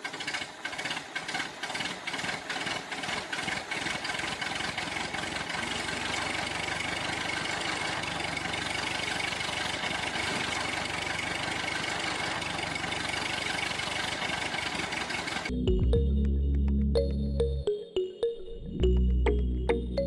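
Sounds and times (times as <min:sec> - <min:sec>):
small motor rattling: 0:00.0 - 0:15.5.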